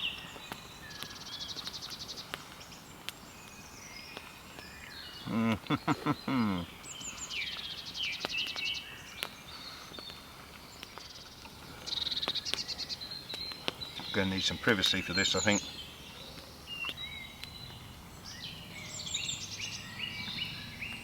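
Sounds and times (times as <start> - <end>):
birds chirping: 0.0 - 21.0
high bird trill: 12.0 - 17.4.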